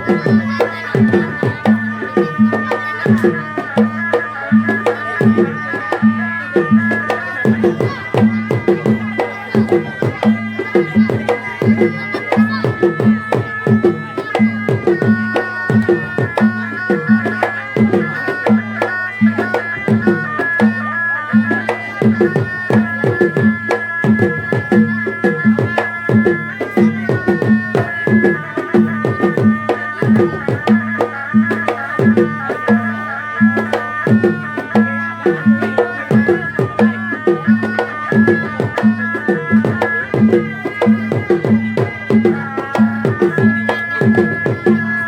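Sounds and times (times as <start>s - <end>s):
fast drum pattern: 0.0s - 20.8s
reedy wind instrument melody: 0.0s - 45.0s.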